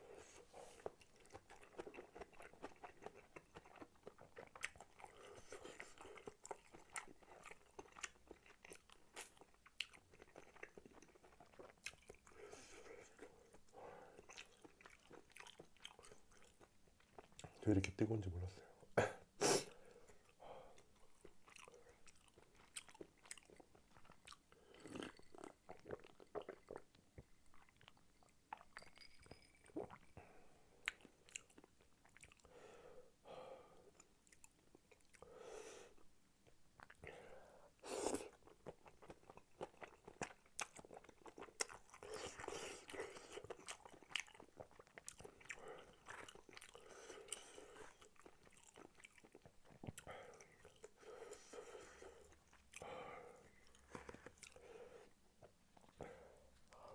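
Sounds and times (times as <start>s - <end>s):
wet chewing mouth sounds: 0.4s - 18.0s, 20.2s - 28.8s, 37.8s - 56.9s.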